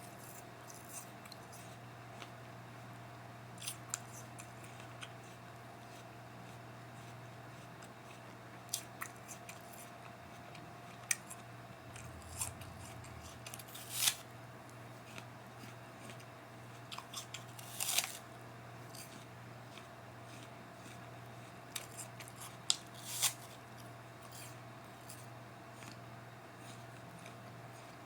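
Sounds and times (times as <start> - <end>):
steady low hum: 0.0 - 17.6
apple crunching: 5.8 - 18.2.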